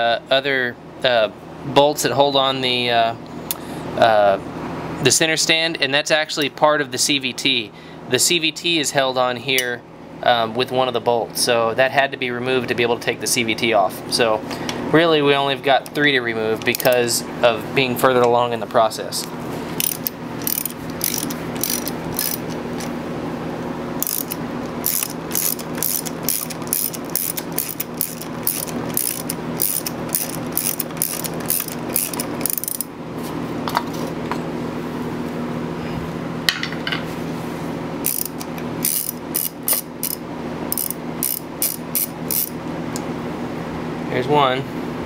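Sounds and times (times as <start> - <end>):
steady low hum: 0.0 - 45.0
socket ratchet clicking: 19.8 - 22.9, 24.0 - 32.9, 38.0 - 42.6.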